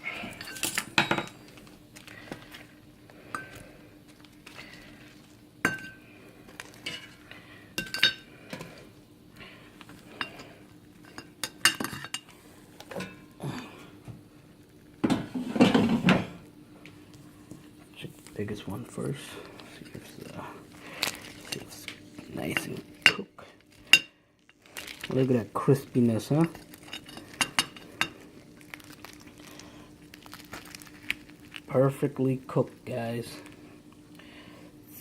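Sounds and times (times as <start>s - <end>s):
utensils clinking on metal basket: 0.2s - 1.3s
utensils clattering: 0.2s - 1.4s.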